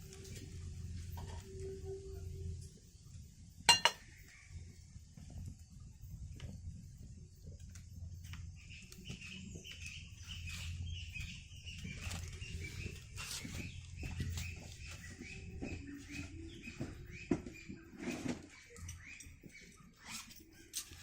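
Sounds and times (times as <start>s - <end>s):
birds chirping: 8.0s - 21.0s.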